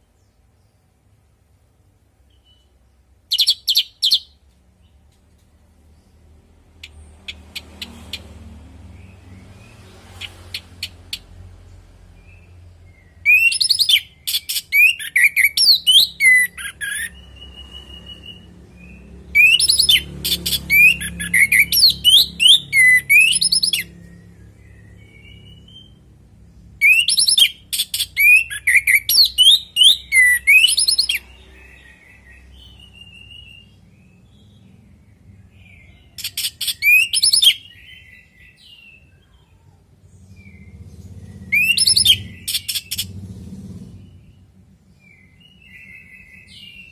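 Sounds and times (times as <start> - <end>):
thrush whistled song: 12.2 - 26.1, 26.8 - 34.6, 35.5 - 39.0, 40.4 - 43.2
faint low rumble: 31.2 - 36.2, 39.1 - 45.7.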